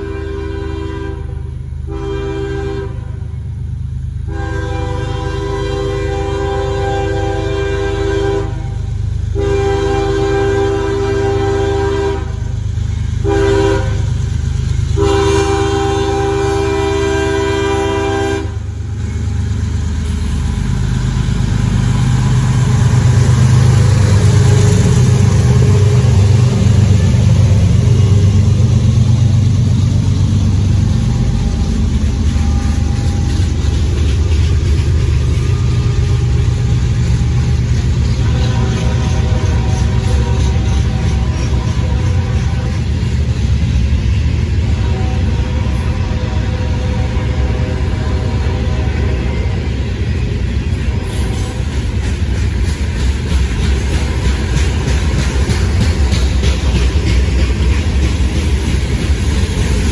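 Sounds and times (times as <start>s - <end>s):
locomotive air horn blasts: 0.0s - 3.4s, 4.2s - 12.5s, 13.2s - 14.1s, 14.9s - 18.8s, 35.3s - 43.1s, 44.6s - 49.7s, 50.8s - 51.8s
diesel engines rumbling: 0.0s - 59.9s.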